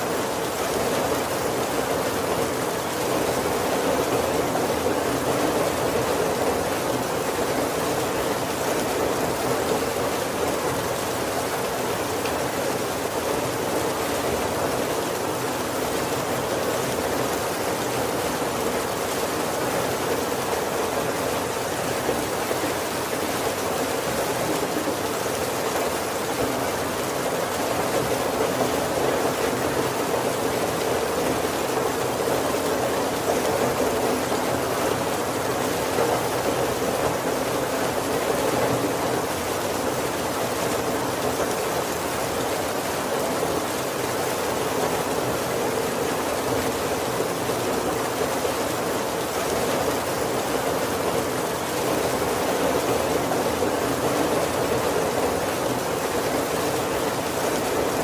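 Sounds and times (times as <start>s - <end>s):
heavy rain on a wooden roof: 0.0s - 58.0s.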